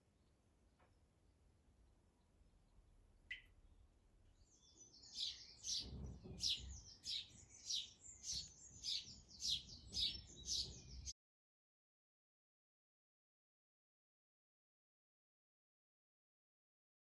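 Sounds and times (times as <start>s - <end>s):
birds chirping: 4.4s - 11.1s.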